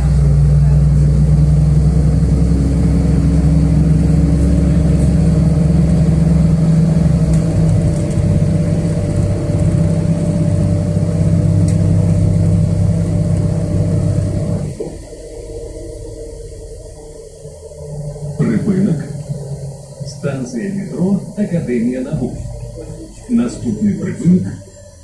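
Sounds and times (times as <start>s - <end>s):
bus engine humming: 0.0s - 25.0s.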